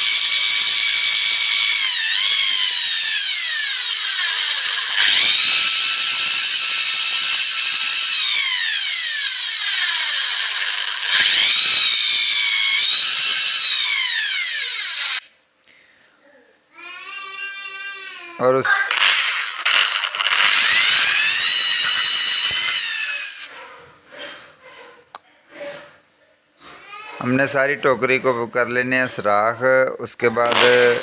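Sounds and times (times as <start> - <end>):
electric drill whining: 0.0 - 15.3, 18.8 - 23.6, 30.5 - 31.0.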